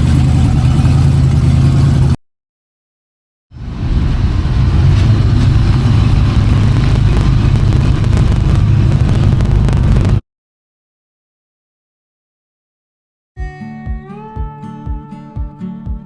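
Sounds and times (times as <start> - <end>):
truck engine rumbling: 0.0 - 2.2, 3.6 - 10.2.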